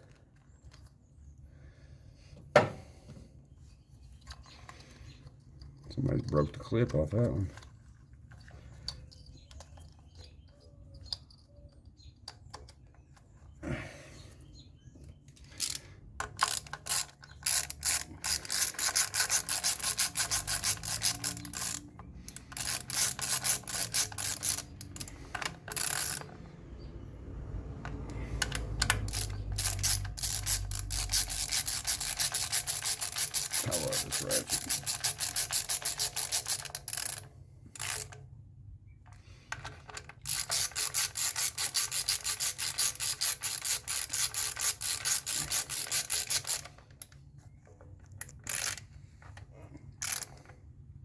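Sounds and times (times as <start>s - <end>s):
ratchet wrench clicking: 15.5s - 26.4s, 27.8s - 38.2s, 39.5s - 47.2s, 48.1s - 48.9s, 50.0s - 50.5s.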